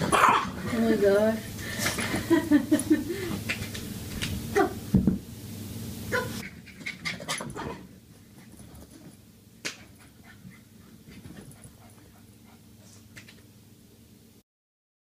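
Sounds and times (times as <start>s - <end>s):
dog panting: 10.0s - 13.2s.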